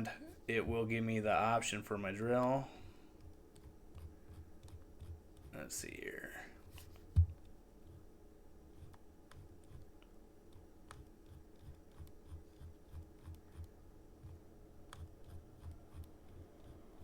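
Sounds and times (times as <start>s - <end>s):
low steady room hum: 0.0s - 17.0s
computer mouse clicks: 3.2s - 5.5s, 8.8s - 17.0s
soft low thuds: 7.0s - 7.4s.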